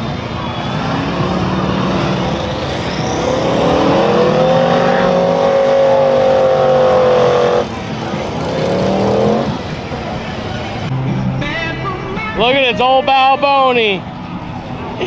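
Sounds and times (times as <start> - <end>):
engine revving hard: 0.0 - 10.4.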